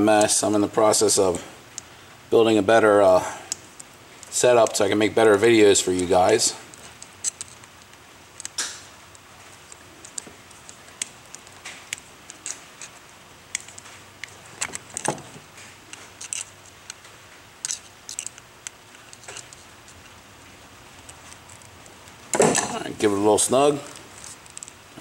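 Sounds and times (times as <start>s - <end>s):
hands handling hose and tools: 3.5s - 5.0s, 6.0s - 20.2s, 21.0s - 25.0s.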